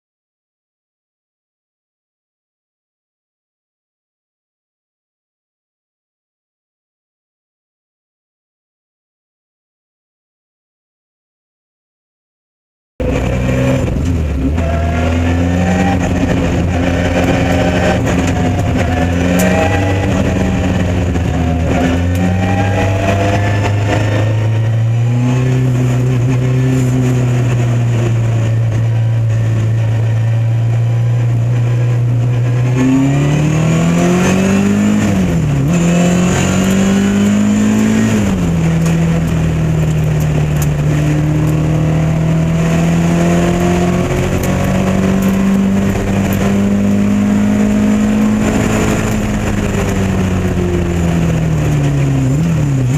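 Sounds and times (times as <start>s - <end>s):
race car engine under load: 13.0s - 52.9s.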